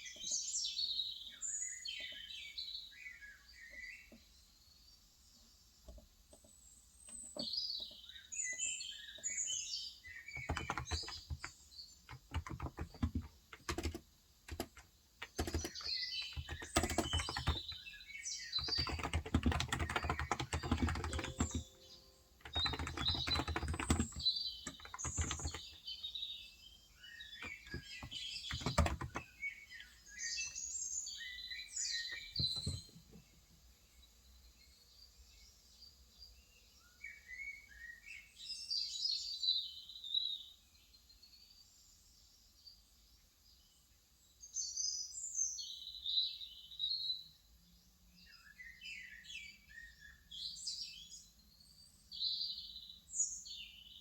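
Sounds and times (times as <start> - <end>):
small birds chirping: 0.0 - 54.0
keyboard typing: 10.3 - 17.8, 18.6 - 26.0, 27.4 - 29.3, 32.2 - 33.0.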